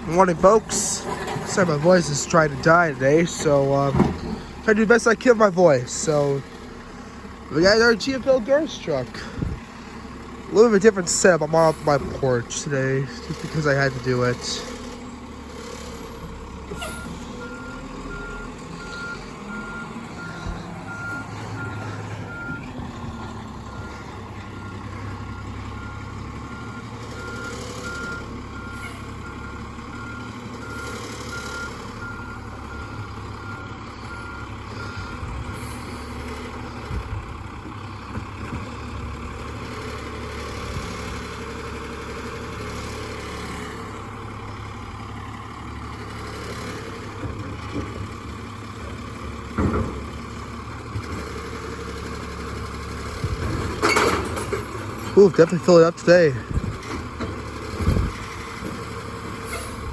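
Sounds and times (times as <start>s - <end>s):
truck engine running: 0.0s - 59.9s
reversing alarm beeping: 16.8s - 22.6s.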